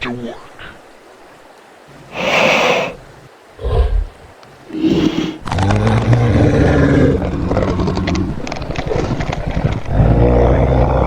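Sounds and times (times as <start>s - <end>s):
dinosaur roar: 3.6s - 11.0s.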